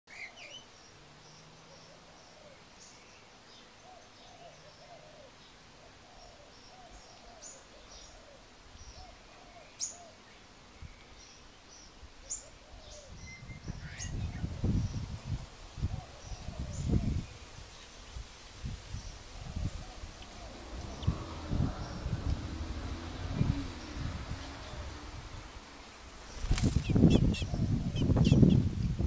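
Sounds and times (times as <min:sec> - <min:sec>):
low rumble: 0:19.4 - 0:25.5.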